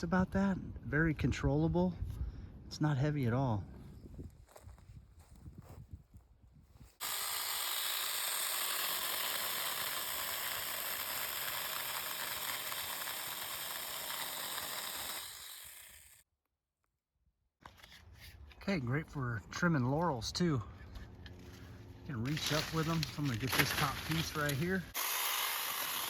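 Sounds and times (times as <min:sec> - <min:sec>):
mini chainsaw cutting branch: 0:07.0 - 0:16.2, 0:22.2 - 0:26.0.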